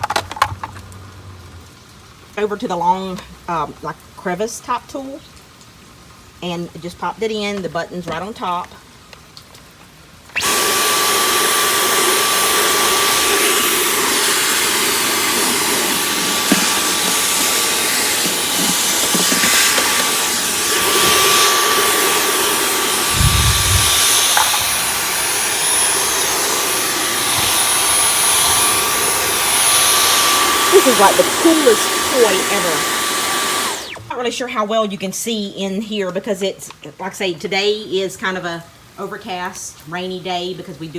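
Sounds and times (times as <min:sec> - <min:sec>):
cordless vacuum running with whine: 0:10.4 - 0:34.1
low bump: 0:23.1 - 0:25.0.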